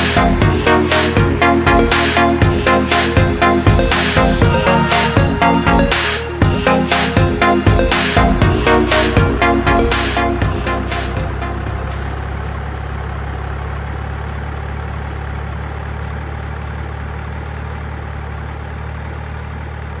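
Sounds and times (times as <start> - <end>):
electronic music: 0.0 - 12.3
heavy engine idling: 0.0 - 20.0.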